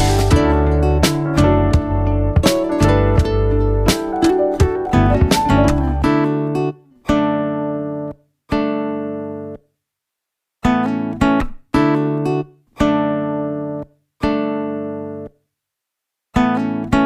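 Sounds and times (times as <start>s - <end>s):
guitar chords strummed: 0.0s - 9.6s.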